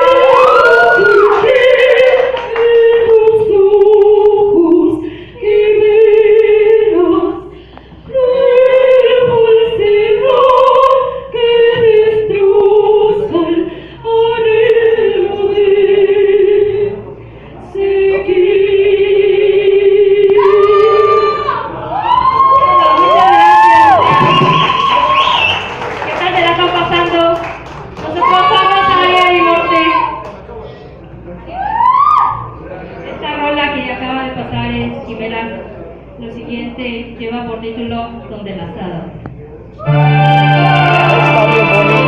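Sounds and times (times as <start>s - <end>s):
woman singing operatically: 0.0s - 7.5s, 8.1s - 17.0s, 17.7s - 21.6s, 26.1s - 30.2s.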